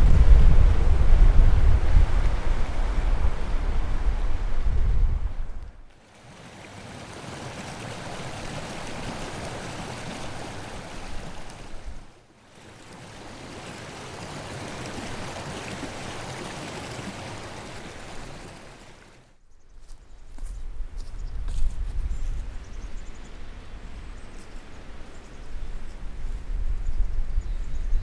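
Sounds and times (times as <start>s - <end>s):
outdoor rushing noise: 0.0s - 5.8s.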